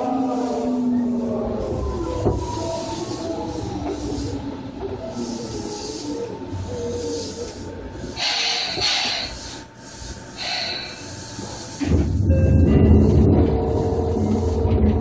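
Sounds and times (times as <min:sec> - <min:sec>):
train noise: 0:00.0 - 0:15.0
hissing air bursts: 0:00.2 - 0:12.2
loud low rumble: 0:11.9 - 0:15.0.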